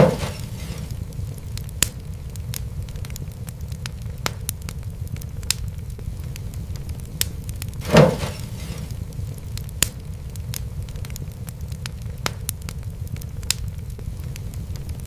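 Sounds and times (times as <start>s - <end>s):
hissing burst: 0.0s - 1.1s, 7.8s - 9.1s
fireplace fire crackling: 0.0s - 15.0s
steady low rumble: 0.0s - 15.0s.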